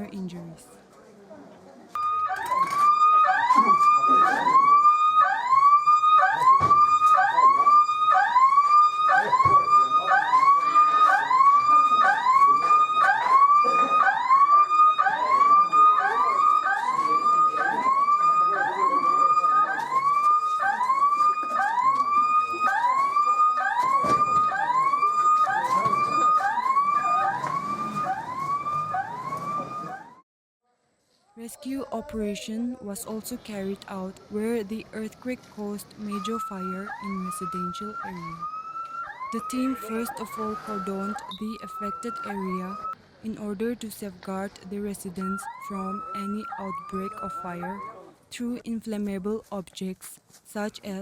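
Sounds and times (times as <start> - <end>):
emergency siren rising sweep: 2.0 - 30.2, 35.9 - 43.0, 45.1 - 48.1.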